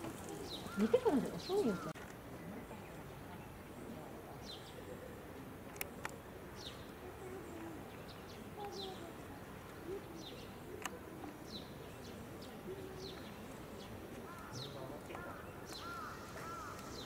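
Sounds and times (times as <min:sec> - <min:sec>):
background hiss: 0:00.0 - 0:17.0
birds chirping: 0:00.0 - 0:17.0.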